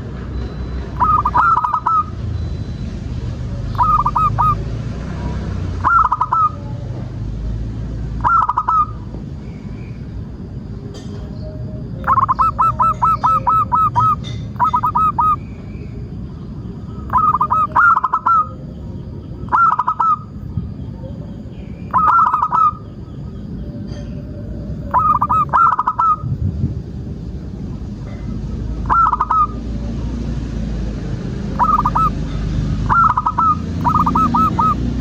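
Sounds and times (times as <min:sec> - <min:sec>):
dove rolling coos: 0:00.8 - 0:02.2, 0:03.7 - 0:04.7, 0:05.8 - 0:06.8, 0:08.2 - 0:09.1, 0:11.8 - 0:23.5, 0:24.8 - 0:26.4, 0:28.7 - 0:30.0, 0:31.4 - 0:35.0
low background rumble: 0:05.9 - 0:35.0.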